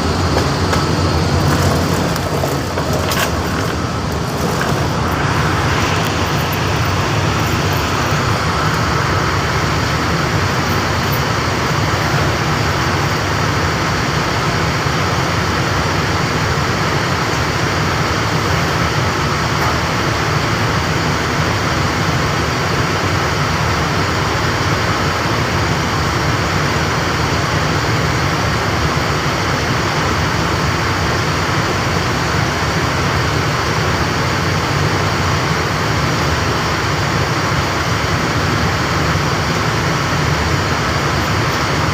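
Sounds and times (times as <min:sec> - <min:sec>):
machinery rumbling with high whine: 0:00.0 - 0:41.9.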